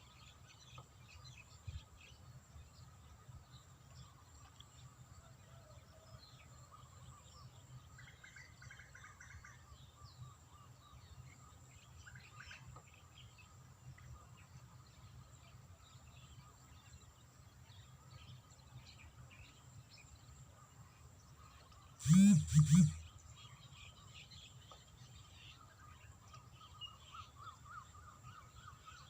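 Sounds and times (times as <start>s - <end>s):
bird chirps: 21.9s - 24.7s
thin high tone: 22.0s - 23.0s
rapid bird trill: 22.0s - 23.3s.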